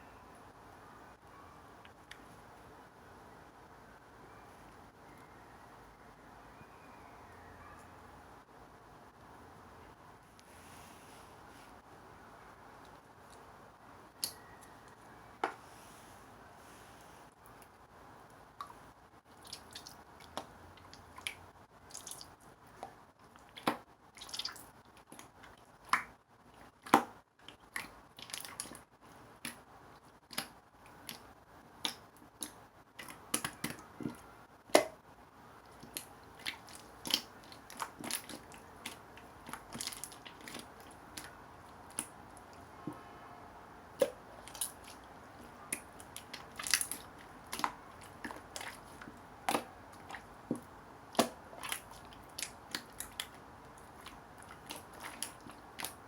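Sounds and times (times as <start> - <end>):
slime sticky clicks and squishes: 35.7 - 41.3, 45.7 - 56.0.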